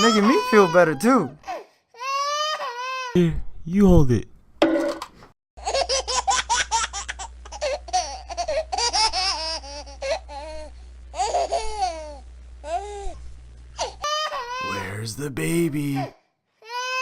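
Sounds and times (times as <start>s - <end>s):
baby giggling and laughing: 5.6s - 10.6s, 11.2s - 12.2s.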